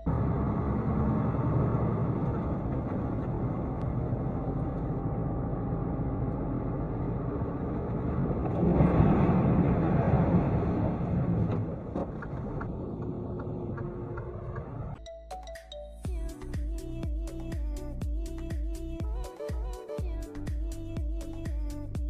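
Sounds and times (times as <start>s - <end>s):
road noise: 0.0s - 15.0s
vehicle engine: 0.0s - 15.0s.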